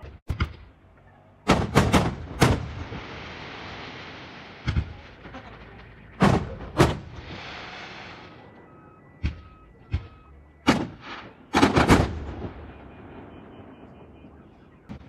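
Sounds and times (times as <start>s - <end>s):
fireworks exploding: 1.5s - 15.0s
fireworks hissing: 2.8s - 5.8s, 7.0s - 8.5s.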